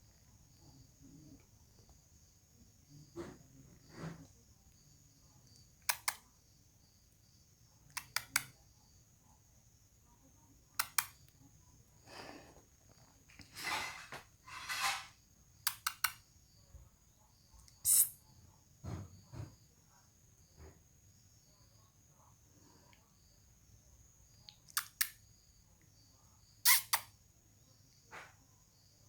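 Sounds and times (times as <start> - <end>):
breathy hisses: 12.0 - 12.8
mouth clicks: 17.6 - 18.2, 26.6 - 27.1.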